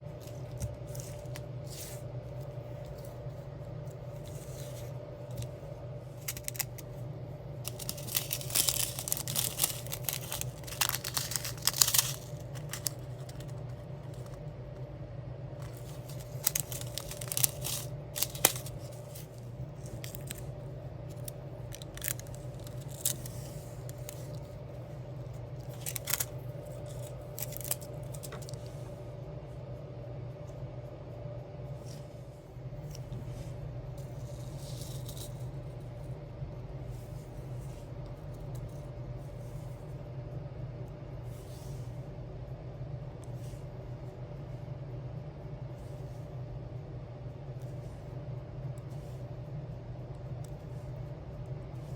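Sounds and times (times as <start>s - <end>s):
low hum: 0.0s - 51.9s
plastic sheets crinkling: 4.0s - 7.0s, 7.6s - 14.5s, 15.6s - 24.6s, 25.4s - 28.7s.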